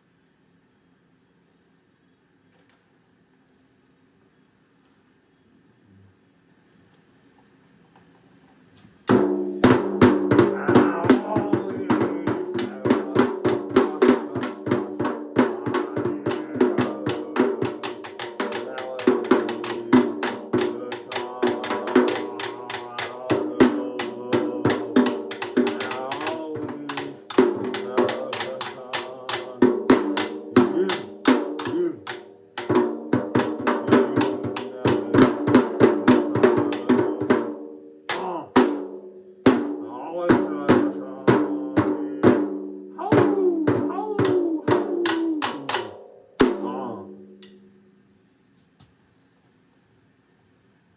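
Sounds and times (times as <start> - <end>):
rapid snare hits: 9.1 - 39.8, 43.3 - 46.8
music with busy drums: 9.1 - 47.4.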